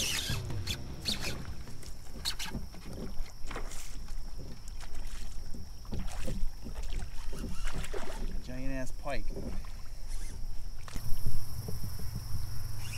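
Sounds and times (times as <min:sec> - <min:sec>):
water sloshing against kayak hull: 0:00.0 - 0:12.4
small knocks from boat and gear: 0:00.4 - 0:12.4.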